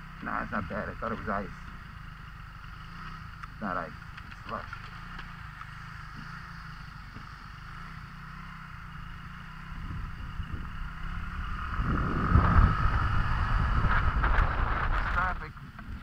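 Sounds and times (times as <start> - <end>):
scooter engine running: 0.0 - 16.0
wind buffeting microphone: 9.7 - 16.0.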